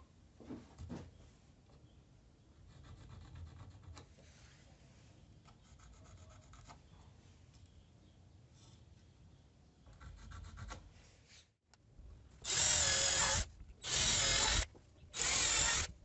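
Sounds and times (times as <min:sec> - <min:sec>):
faint scraping strokes: 0:04.1 - 0:06.6.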